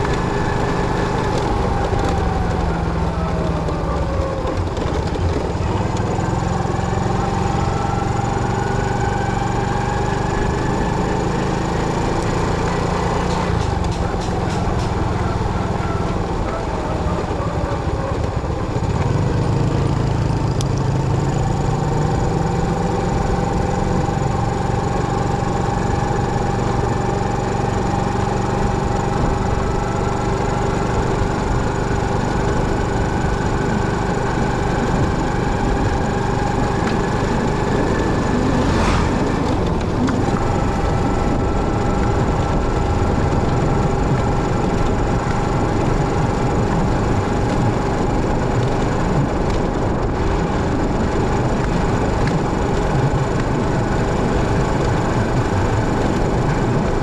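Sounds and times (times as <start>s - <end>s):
motorcycle engine rumble: 0.0s - 57.0s
short rush of noise: 38.3s - 39.6s.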